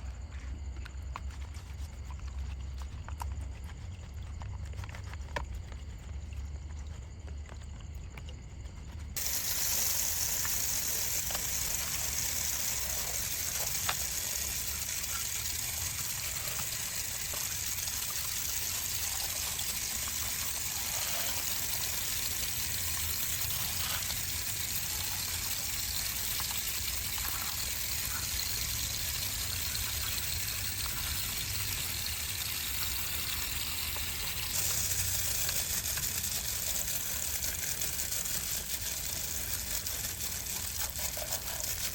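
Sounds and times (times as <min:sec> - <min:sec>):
water spraying: 0:09.2 - 0:41.9.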